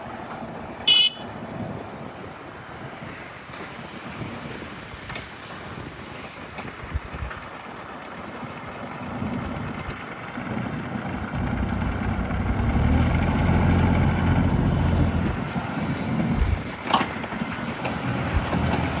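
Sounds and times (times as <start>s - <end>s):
excavator diesel engine running: 7.2s - 19.0s.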